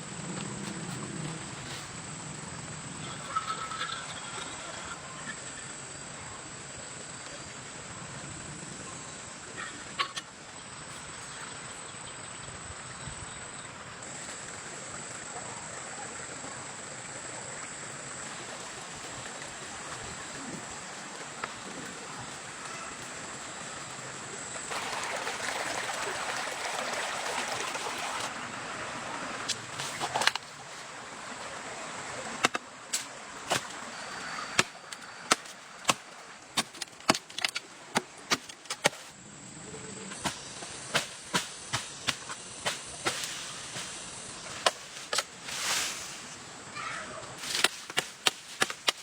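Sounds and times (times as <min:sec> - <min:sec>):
sharp chopping strokes: 0:32.4 - 0:33.8, 0:34.6 - 0:39.1, 0:40.2 - 0:44.0, 0:47.4 - 0:49.0
rustling noise: 0:40.2 - 0:46.6.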